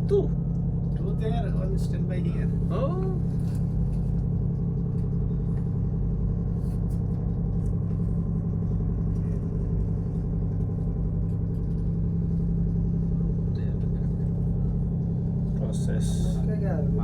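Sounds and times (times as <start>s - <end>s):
diesel machinery drone: 0.0s - 17.0s.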